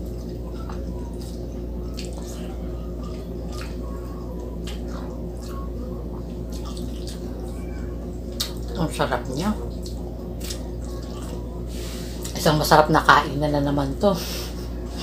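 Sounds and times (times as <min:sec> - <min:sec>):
person chewing food: 0:00.0 - 0:08.8, 0:09.6 - 0:12.3
steady low hum: 0:00.0 - 0:15.0.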